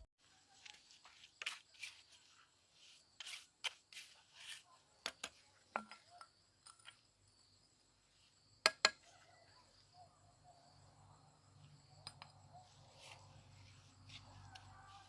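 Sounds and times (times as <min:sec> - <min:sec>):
crickets chirring: 0:00.7 - 0:15.0.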